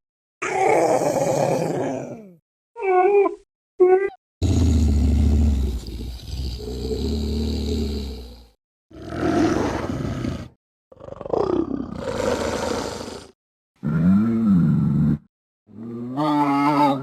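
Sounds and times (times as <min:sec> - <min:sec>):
growling call: 0:00.4 - 0:02.4, 0:04.4 - 0:17.0.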